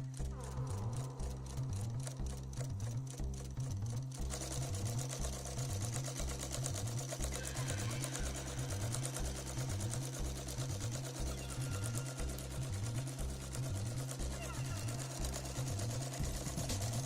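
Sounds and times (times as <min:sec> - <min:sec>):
background music with bass: 0:00.0 - 0:17.0
sewing machine ticking: 0:00.0 - 0:17.0.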